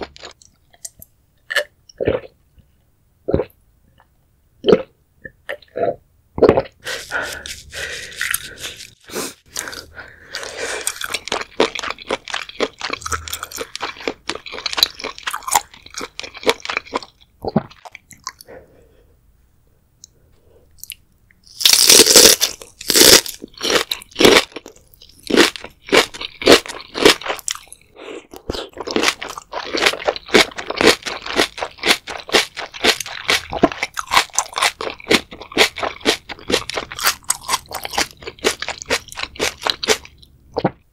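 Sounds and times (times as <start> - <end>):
crunching and chewing: 6.6 - 18.5, 20.8 - 40.8
loud crunching bite: 7.3 - 17.1, 21.5 - 24.6, 28.4 - 40.7.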